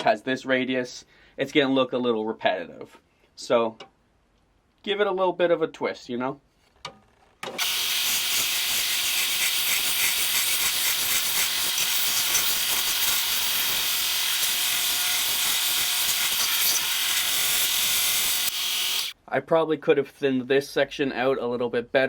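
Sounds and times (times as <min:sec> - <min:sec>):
belt sander grinding wood: 0:07.6 - 0:19.2.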